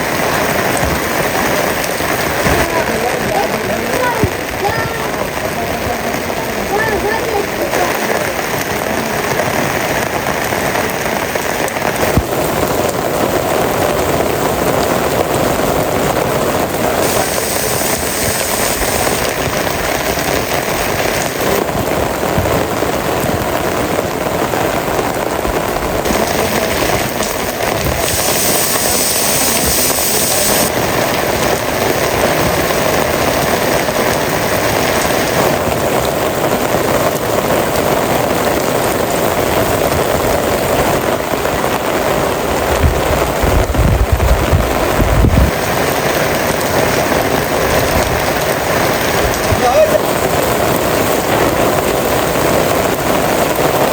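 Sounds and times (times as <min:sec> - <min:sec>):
heavy rain falling: 0:00.0 - 0:53.9
sharp raindrop ticks: 0:00.1 - 0:24.1, 0:26.0 - 0:41.5.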